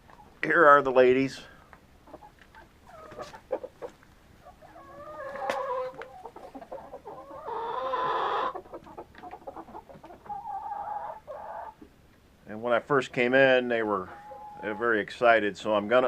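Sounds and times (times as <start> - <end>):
chickens clucking: 0.0 - 16.0
drawn-out chicken call: 2.0 - 11.8, 14.0 - 14.8.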